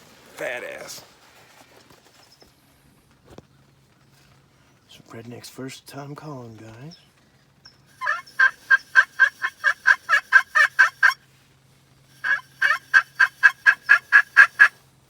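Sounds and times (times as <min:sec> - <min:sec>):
turkey call notes: 0:07.9 - 0:11.3, 0:12.1 - 0:14.8.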